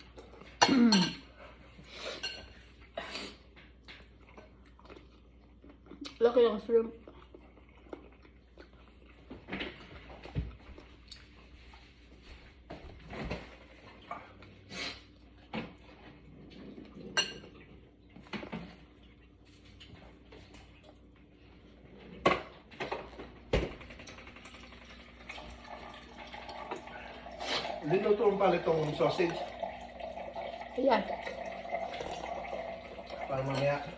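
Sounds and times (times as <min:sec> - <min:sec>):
utensils clinking against bowl: 0:00.2 - 0:01.4, 0:02.2 - 0:02.6, 0:17.1 - 0:17.7.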